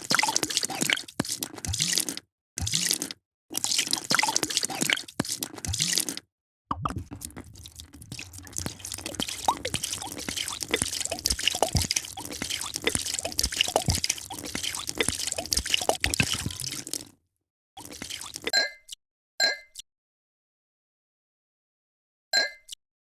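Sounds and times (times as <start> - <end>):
drink pouring into a glass: 6.8 - 17.1, 17.8 - 18.5.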